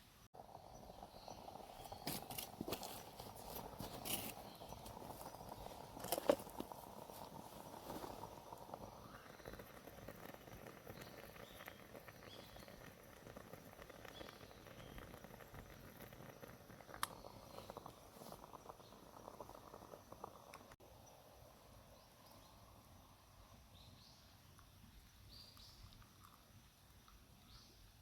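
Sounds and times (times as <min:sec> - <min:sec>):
faint outdoor ambience: 0:00.0 - 0:28.0
small clicks and crackles: 0:01.7 - 0:20.8.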